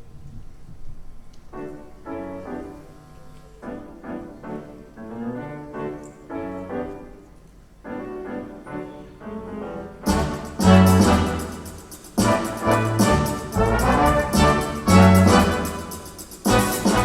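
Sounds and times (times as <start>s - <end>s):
grand piano chords: 0.0s - 17.0s
symphony orchestra with brass: 8.1s - 17.0s.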